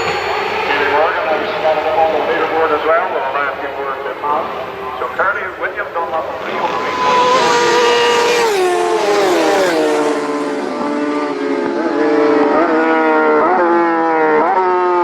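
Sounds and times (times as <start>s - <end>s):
racing motorcycle engine running hard: 4.2s - 15.0s.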